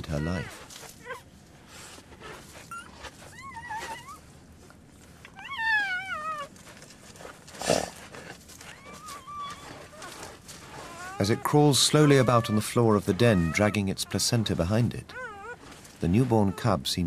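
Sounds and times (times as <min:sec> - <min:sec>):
wolf cub squealing: 0:00.0 - 0:01.3, 0:02.6 - 0:04.3, 0:05.3 - 0:06.6, 0:08.6 - 0:16.9.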